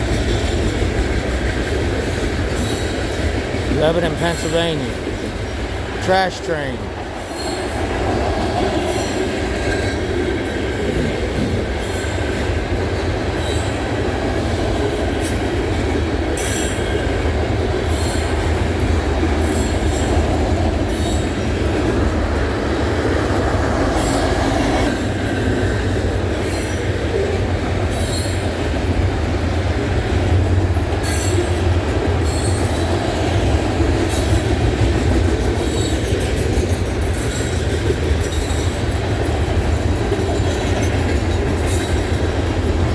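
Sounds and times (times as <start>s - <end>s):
freight train rumbling on rails: 0.0s - 42.9s
wheels clacking over rail joints: 27.9s - 42.9s.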